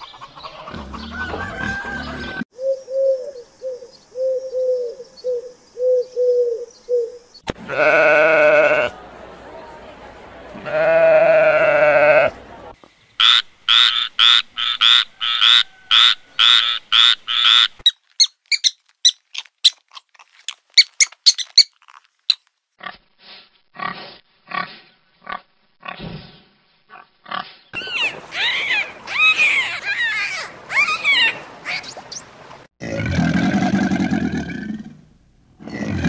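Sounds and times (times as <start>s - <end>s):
animal calls: 27.3s - 32.2s.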